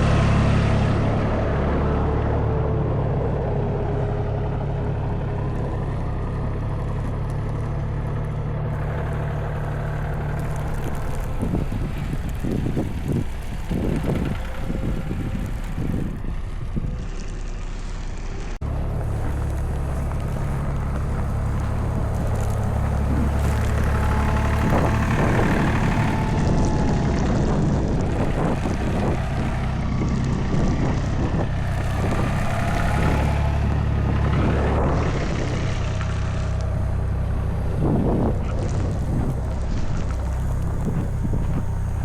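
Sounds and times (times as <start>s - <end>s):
city street traffic: 0.0s - 42.0s
wind buffeting microphone: 0.0s - 42.0s.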